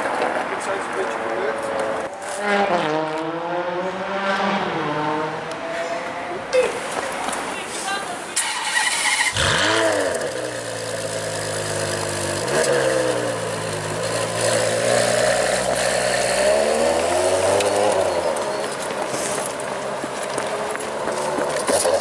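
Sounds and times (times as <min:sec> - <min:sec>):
car engine idling high: 0:09.2 - 0:14.6.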